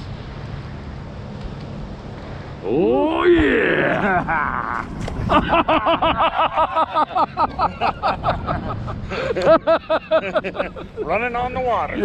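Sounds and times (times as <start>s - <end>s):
man laughing hard: 3.5s - 11.1s.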